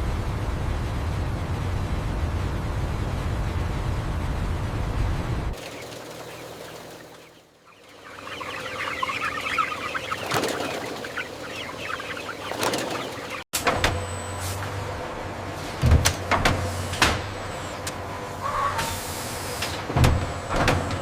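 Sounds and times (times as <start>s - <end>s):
wings flapping: 5.5s - 13.5s
chickens clucking: 5.6s - 13.5s.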